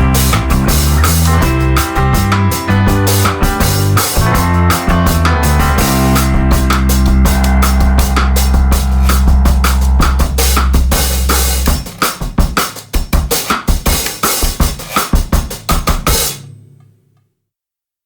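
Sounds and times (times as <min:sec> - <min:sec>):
held bass line: 0:00.0 - 0:12.9
drum kit beat: 0:00.0 - 0:16.5.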